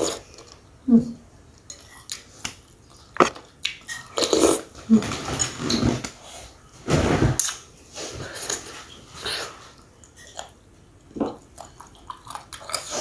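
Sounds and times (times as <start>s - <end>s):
person chewing and smacking: 1.7s - 4.8s, 10.0s - 13.0s.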